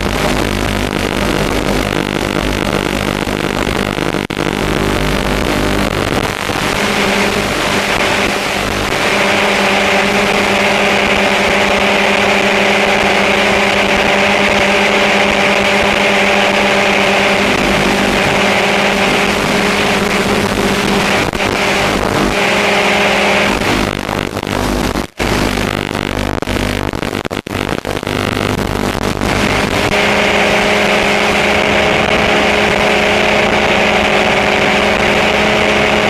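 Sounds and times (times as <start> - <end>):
model aircraft motors whining: 6.3 - 23.8.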